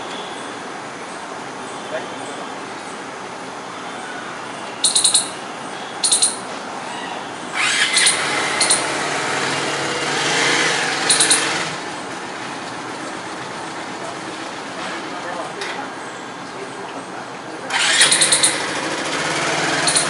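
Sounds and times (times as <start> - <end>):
traffic noise: 0.0 - 20.0
squirrel chirping: 4.6 - 9.1, 10.9 - 11.8, 17.8 - 18.7, 19.7 - 20.0.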